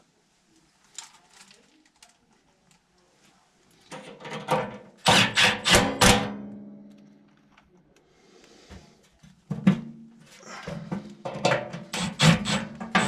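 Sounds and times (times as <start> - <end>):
metal part being struck: 5.1 - 6.8.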